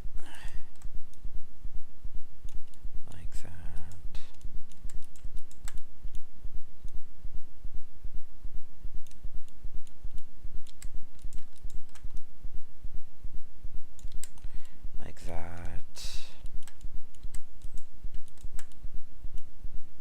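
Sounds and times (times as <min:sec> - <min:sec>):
computer mouse clicks: 0:00.4 - 0:01.2, 0:02.5 - 0:02.8, 0:03.7 - 0:06.2, 0:09.0 - 0:12.3, 0:14.0 - 0:14.7, 0:16.4 - 0:18.8
pulsing low rumble: 0:00.8 - 0:04.7, 0:06.0 - 0:13.9.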